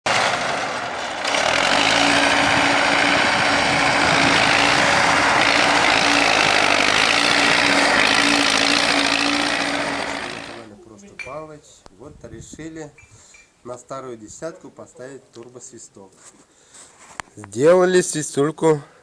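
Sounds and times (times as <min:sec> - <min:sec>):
car engine running: 0:00.0 - 0:10.7.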